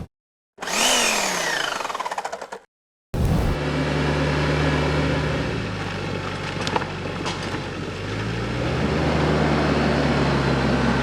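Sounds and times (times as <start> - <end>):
engine running at low revs: 3.2 - 11.0.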